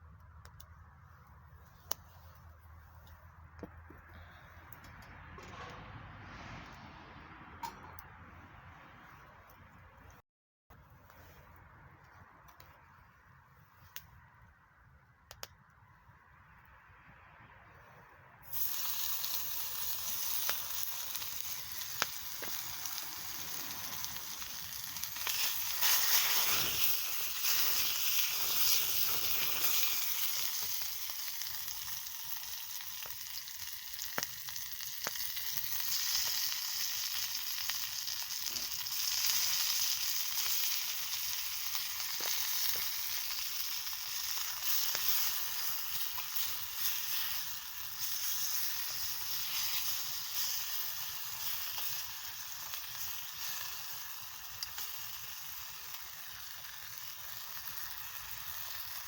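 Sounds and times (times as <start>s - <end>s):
small pops and ticks: 15.2s - 15.7s, 30.2s - 36.4s, 54.4s - 54.9s
food sizzling in a pan: 18.5s - 59.0s.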